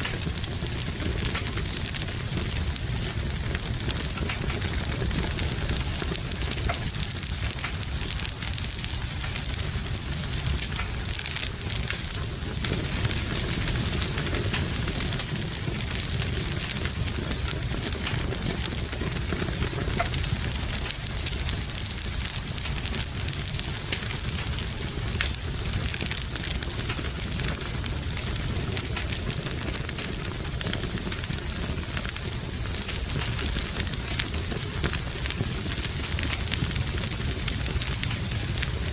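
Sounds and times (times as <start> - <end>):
rain hissing: 0.0 - 38.9
wood fire crackling and popping: 0.0 - 38.9.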